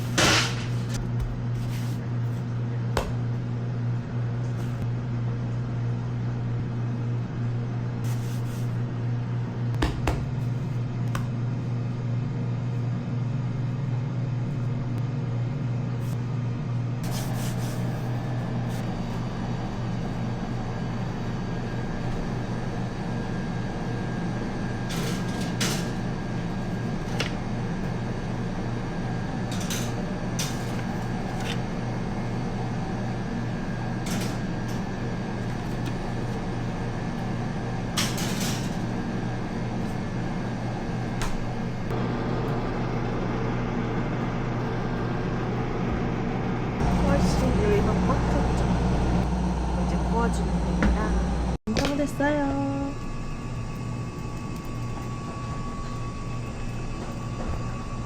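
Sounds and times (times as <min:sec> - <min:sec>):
low machine hum: 0:00.0 - 0:58.0
higher steady tone: 0:41.9 - 0:53.0.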